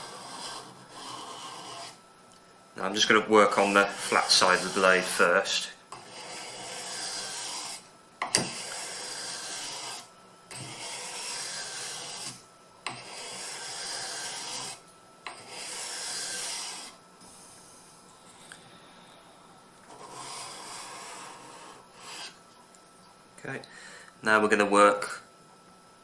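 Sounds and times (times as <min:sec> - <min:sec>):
knife scraping on whetstone: 0:00.0 - 0:02.0, 0:03.6 - 0:17.0, 0:19.9 - 0:22.4.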